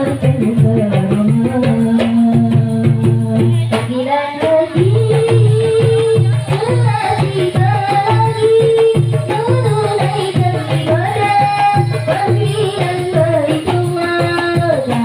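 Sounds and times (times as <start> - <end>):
hand drums beating: 0.0 - 15.0.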